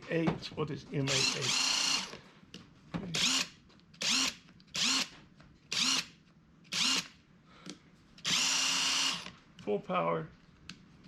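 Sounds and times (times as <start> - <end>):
impact wrench whirring: 1.1 - 2.2, 3.0 - 7.2, 8.2 - 9.4.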